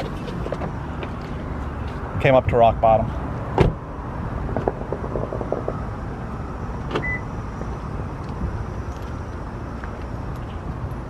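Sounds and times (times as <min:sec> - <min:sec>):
outdoor background noise: 0:00.0 - 0:11.0
sharp distant pops: 0:04.5 - 0:06.0.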